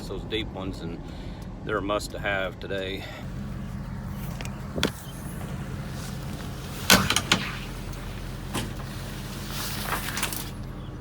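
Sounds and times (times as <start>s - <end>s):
vehicle low hum: 0.0s - 11.0s
vehicle door shutting: 3.3s - 11.0s.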